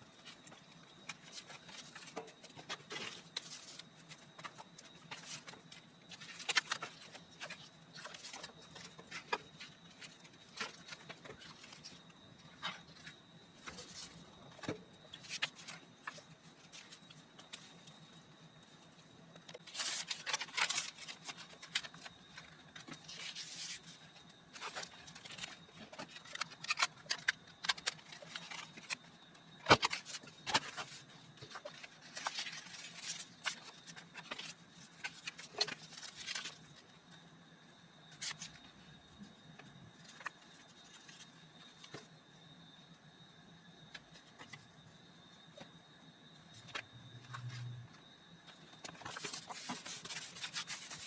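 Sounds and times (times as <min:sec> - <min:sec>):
paper scraping and rustling: 0:19.6 - 0:29.0, 0:29.7 - 0:36.6, 0:48.8 - 0:51.0.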